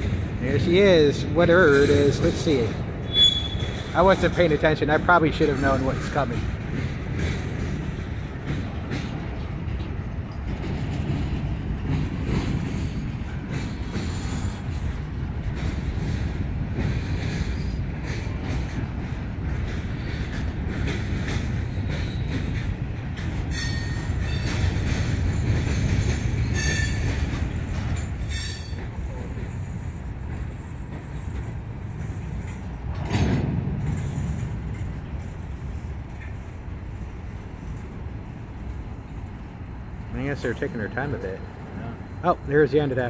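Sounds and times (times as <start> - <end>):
rail joint clicks: 0.0 - 43.0
train wheels rumbling on rails: 0.0 - 43.0
wheel squeals: 3.0 - 4.2, 21.4 - 22.7, 23.5 - 32.7, 33.9 - 43.0.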